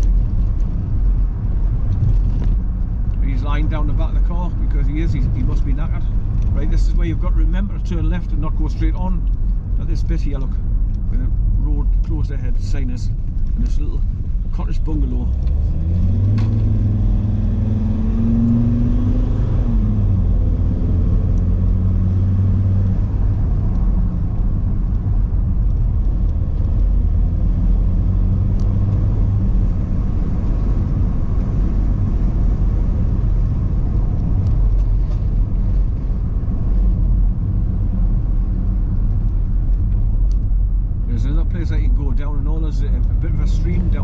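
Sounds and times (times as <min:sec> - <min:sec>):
tyre rumble on road: 0:00.0 - 0:03.4
car engine running: 0:00.0 - 0:44.0.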